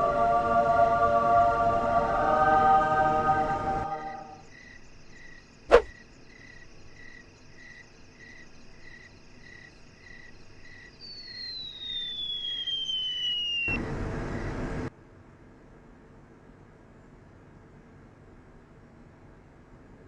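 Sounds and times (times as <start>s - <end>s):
crickets chirping: 3.9s - 14.6s
tone gliding downward: 11.0s - 13.8s.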